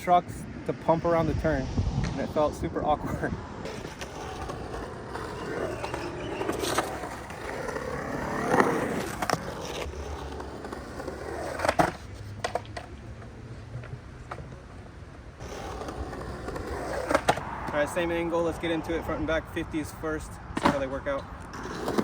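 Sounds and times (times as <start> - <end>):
skateboard rolling on concrete: 0.0 - 22.0
skateboard clacks: 3.7 - 17.8, 20.6 - 22.0.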